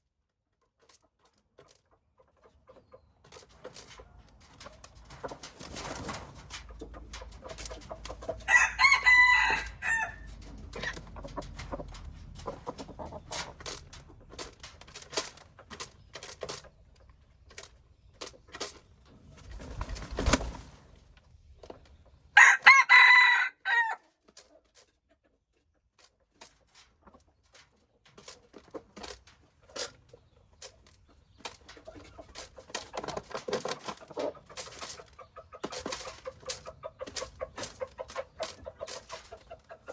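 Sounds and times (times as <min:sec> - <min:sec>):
rooster crowing: 0:08.5 - 0:10.3, 0:22.4 - 0:24.0.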